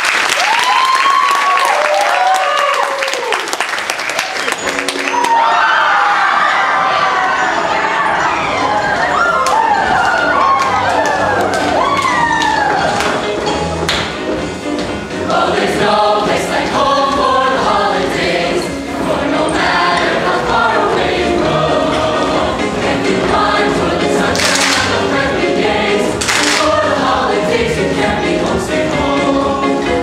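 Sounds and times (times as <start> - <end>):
choir singing with accompaniment: 14.6 - 30.0.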